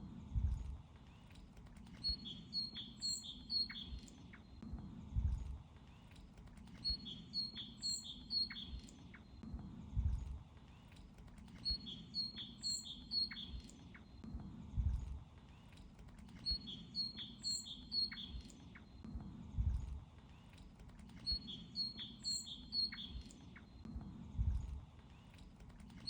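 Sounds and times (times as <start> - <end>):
small bird chirping: 1.9 - 4.4, 6.7 - 9.3, 11.4 - 14.1, 15.6 - 18.9, 20.4 - 23.7.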